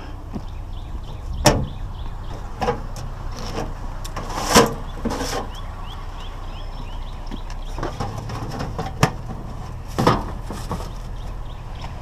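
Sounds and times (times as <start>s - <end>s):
steady low rumble: 0.0s - 12.0s
sheet-metal mailboxes knocking and clanking: 7.4s - 11.1s.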